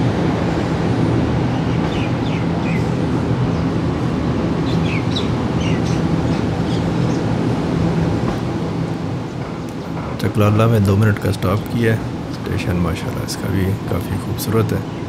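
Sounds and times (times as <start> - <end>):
train machinery humming: 0.0 - 15.0
small birds chirping: 1.4 - 3.8, 4.6 - 7.7.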